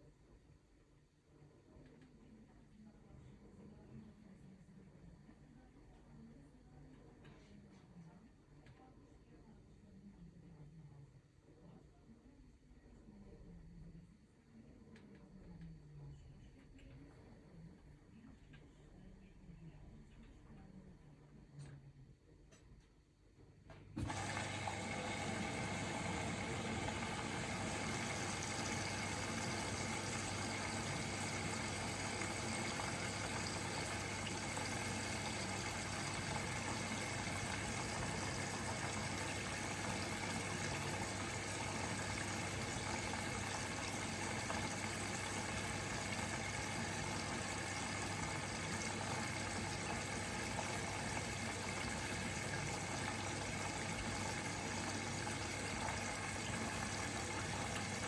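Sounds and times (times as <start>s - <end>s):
water rushing in with hum: 24.0s - 58.0s.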